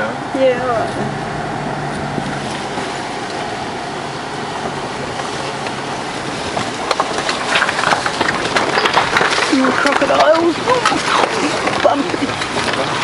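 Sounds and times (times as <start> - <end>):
vehicle driving on dirt track: 0.0 - 13.0
stones clicking and knocking: 6.5 - 13.0.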